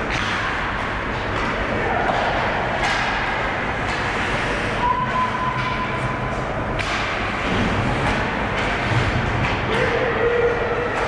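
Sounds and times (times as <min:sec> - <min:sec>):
skates scraping ice: 0:06.8 - 0:09.9.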